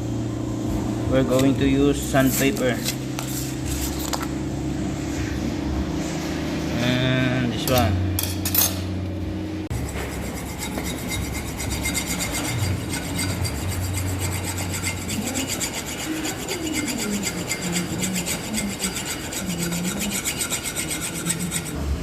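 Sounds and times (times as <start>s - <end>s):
sandpaper rubbing on metal: 9.7s - 22.0s.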